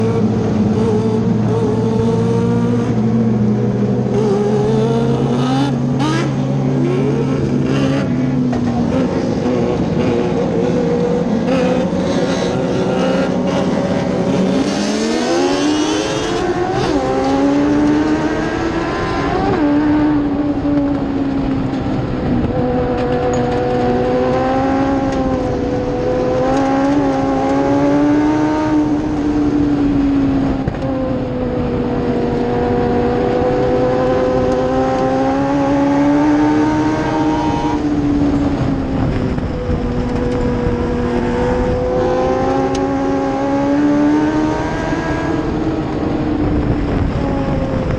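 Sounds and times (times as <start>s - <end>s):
race truck engine revving: 0.0s - 20.3s.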